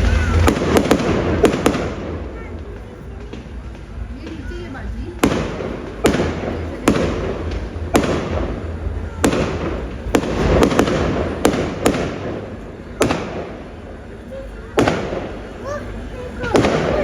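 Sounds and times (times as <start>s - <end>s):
fireworks bangs echoing: 0.0s - 14.2s, 14.8s - 17.0s.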